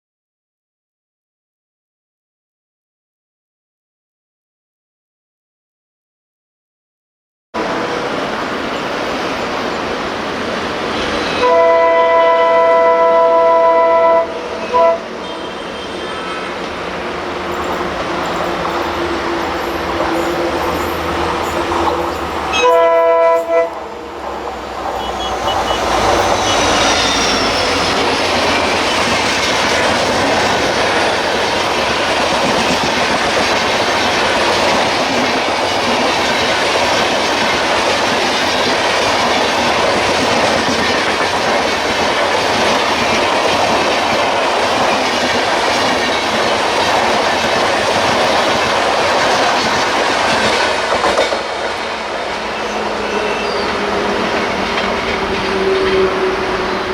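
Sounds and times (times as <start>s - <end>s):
train passing at speed: 7.6s - 56.9s
train horn: 11.2s - 29.4s, 51.2s - 56.9s
wheels clacking over rail joints: 24.2s - 56.9s.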